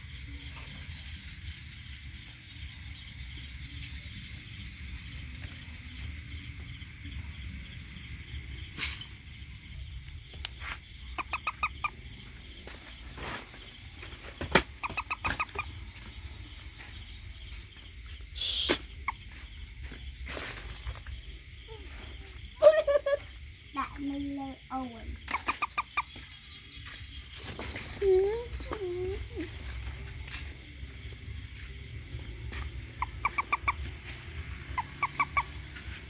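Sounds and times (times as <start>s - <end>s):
steady low rumble: 0.0s - 13.0s, 26.3s - 36.0s
toad calling in pulsed trills: 10.4s - 12.0s, 14.8s - 16.1s, 21.6s - 27.4s, 31.1s - 36.0s.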